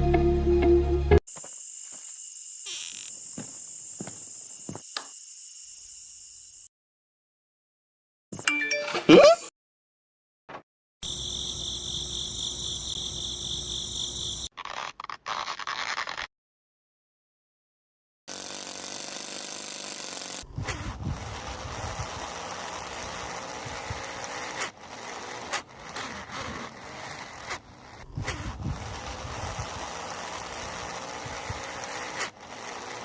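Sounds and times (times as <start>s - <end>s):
small toy tractor motor running: 1.4s - 6.6s, 18.3s - 33.0s.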